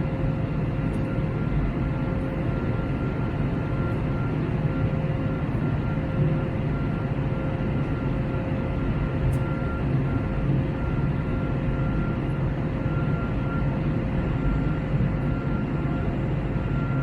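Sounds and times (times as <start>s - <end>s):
faint steady whine: 0.0s - 17.0s
jet engine drone: 0.0s - 17.0s.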